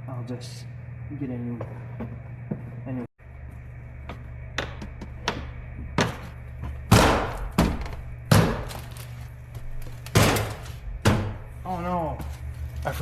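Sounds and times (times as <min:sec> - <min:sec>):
door panel thumping onto clips: 0:10.0 - 0:11.4.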